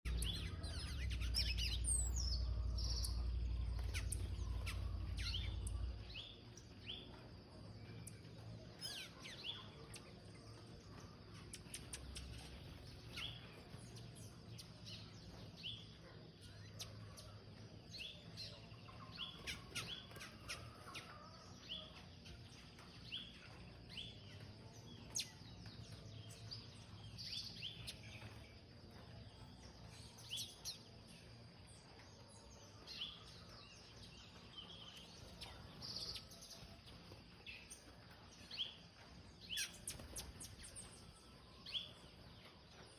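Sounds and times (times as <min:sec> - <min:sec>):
small birds chirping: 0:00.0 - 0:42.9.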